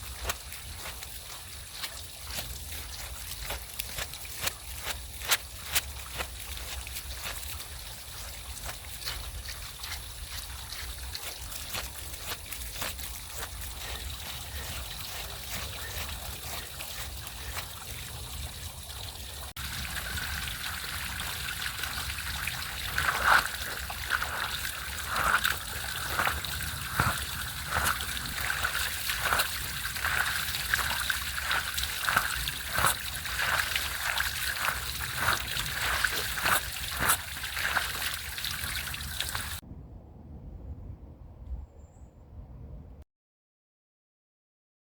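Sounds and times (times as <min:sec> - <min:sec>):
water trickling and splashing: 0:00.0 - 0:39.6
wet scrubbing strokes: 0:00.0 - 0:39.6.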